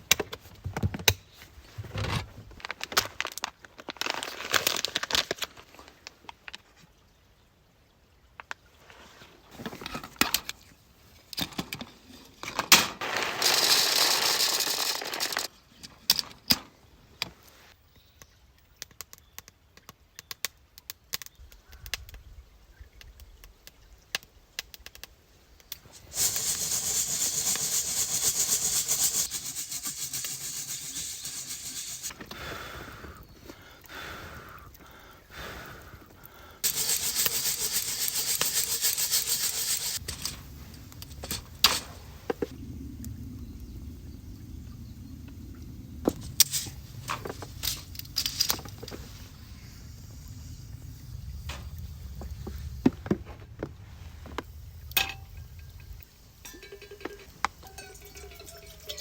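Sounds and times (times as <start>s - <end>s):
rubbing or scraping strokes: 25.8s - 32.2s, 36.6s - 42.4s.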